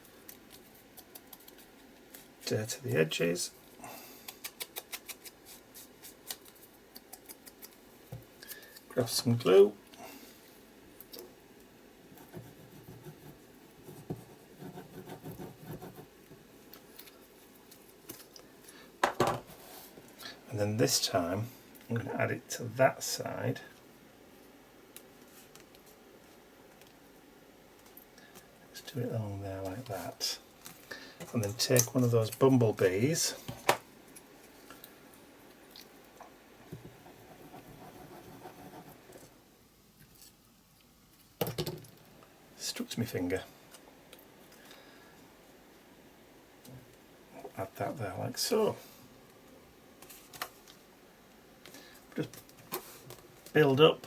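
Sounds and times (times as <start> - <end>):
paper rustling and scratching: 0.1 - 2.4.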